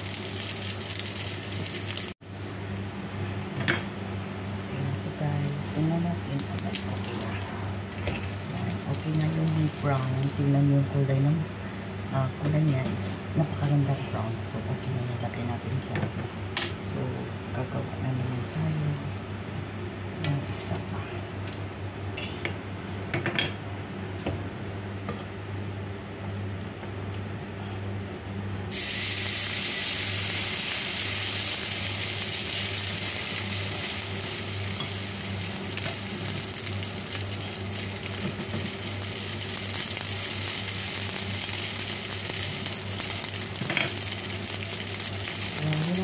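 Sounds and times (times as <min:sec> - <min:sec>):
batter sizzling on griddle: 0:00.0 - 0:10.5, 0:28.7 - 0:46.0.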